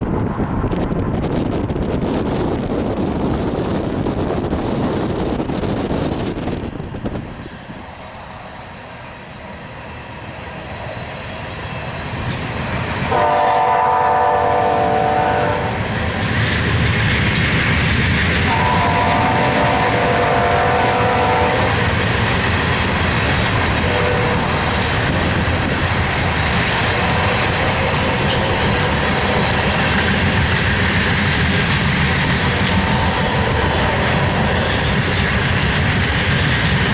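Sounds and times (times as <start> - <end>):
train rumbling past: 0.0 - 36.9
train horn blasts: 13.0 - 15.8, 18.4 - 21.8, 23.6 - 24.8.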